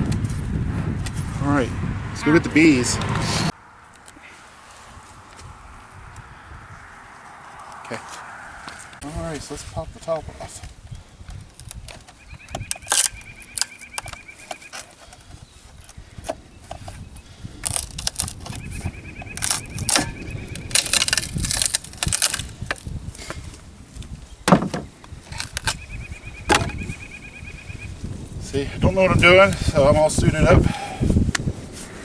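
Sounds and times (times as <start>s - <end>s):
wooden lid being pried off: 24.4s - 25.7s, 26.5s - 26.8s.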